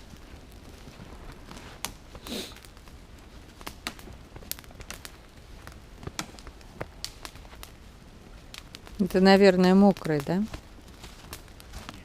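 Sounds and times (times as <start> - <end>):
campfire crackling: 0.0 - 12.0
sharp fire pops: 0.0 - 12.0
short hiss: 2.2 - 2.6.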